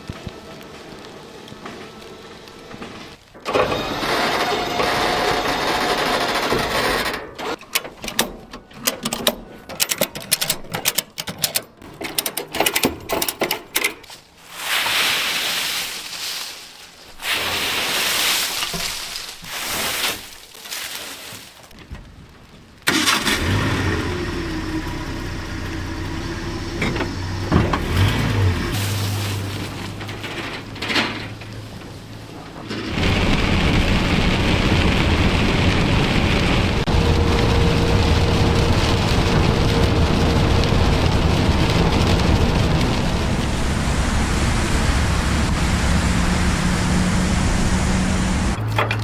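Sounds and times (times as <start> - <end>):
hissing noise: 14.4 - 20.5, 32.8 - 48.6
car engine running: 32.6 - 48.6.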